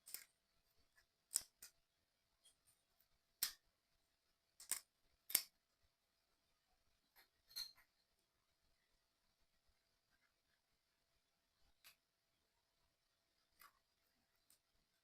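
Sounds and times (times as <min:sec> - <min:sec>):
small plastic parts clicking: 0:00.0 - 0:01.8, 0:02.4 - 0:03.6, 0:04.5 - 0:05.6.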